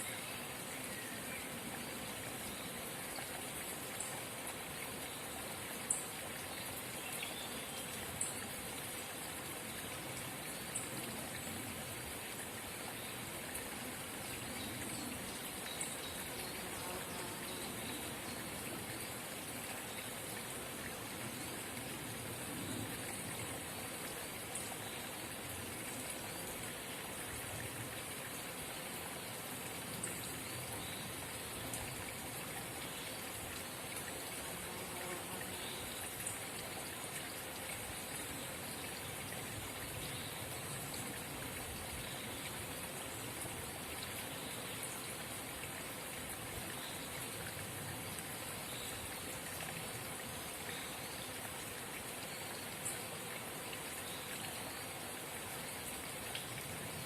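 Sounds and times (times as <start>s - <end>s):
spring water babbling: 0.0s - 57.0s.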